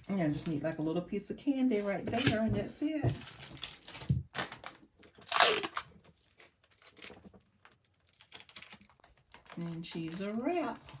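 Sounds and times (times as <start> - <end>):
plastic crinkling and handling: 3.0 - 11.0
plastic wrap tearing: 3.2 - 7.3, 7.9 - 11.0.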